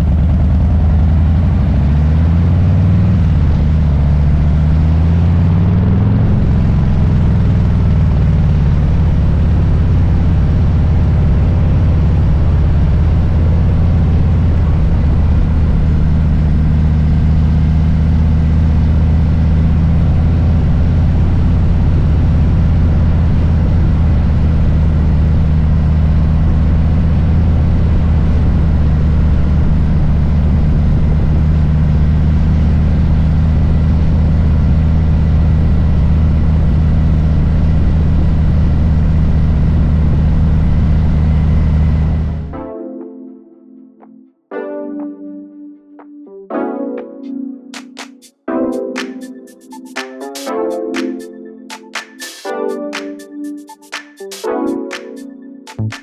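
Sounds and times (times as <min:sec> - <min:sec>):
motorcycle engine rumble: 0:00.0 - 0:42.5.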